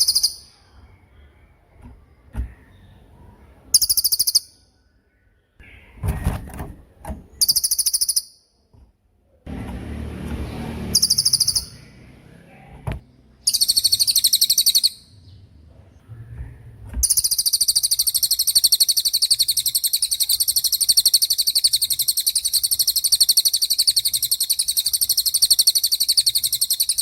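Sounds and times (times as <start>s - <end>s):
bird high-pitched trills: 0.0s - 1.4s, 3.7s - 4.8s, 7.4s - 8.5s, 10.8s - 12.0s, 13.4s - 15.2s, 17.0s - 27.0s.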